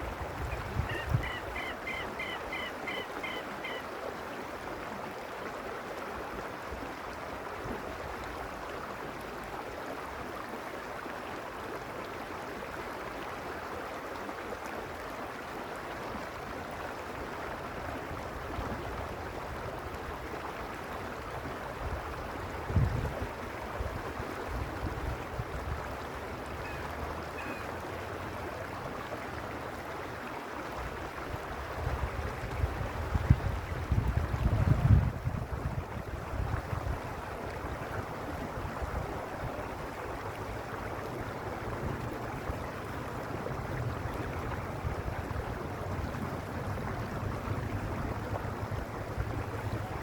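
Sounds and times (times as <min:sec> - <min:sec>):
wind buffeting microphone: 0:00.0 - 0:01.7, 0:21.8 - 0:25.9, 0:31.6 - 0:39.7
creek flowing: 0:00.0 - 0:50.0.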